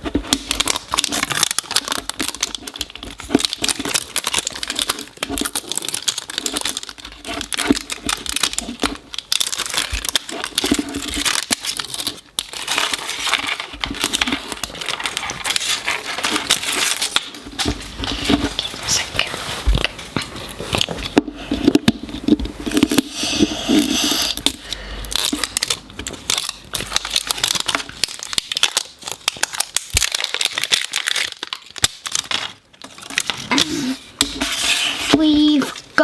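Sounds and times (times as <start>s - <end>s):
wrapping crinkling and tearing: 0.0s - 36.0s.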